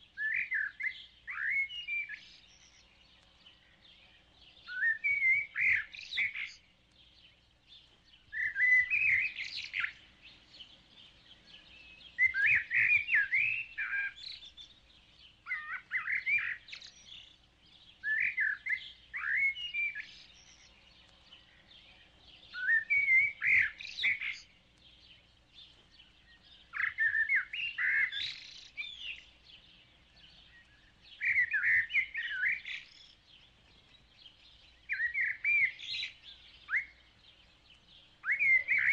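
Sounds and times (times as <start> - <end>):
faint steady hiss: 0.0 - 38.9
songbird singing: 0.0 - 38.9.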